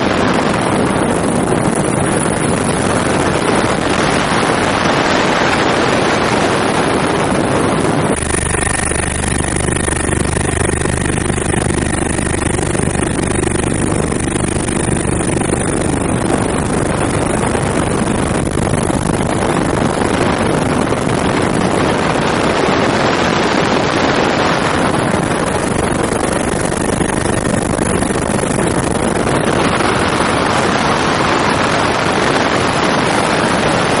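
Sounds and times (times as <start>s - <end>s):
helicopter engine and rotor noise: 0.0s - 34.0s
wind on microphone: 0.0s - 34.0s.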